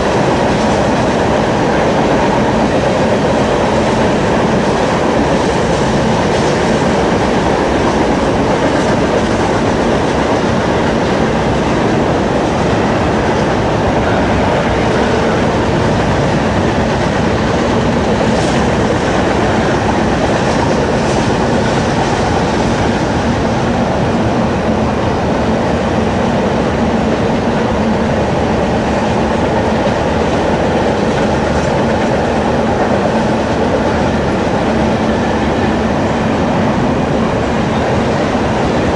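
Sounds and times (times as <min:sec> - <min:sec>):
train rolling past: 0:00.0 - 0:38.9.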